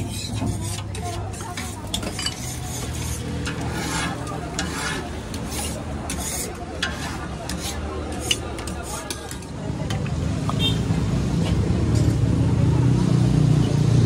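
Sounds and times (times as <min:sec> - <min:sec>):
steel ladle scraping and clinking: 0:00.0 - 0:09.6.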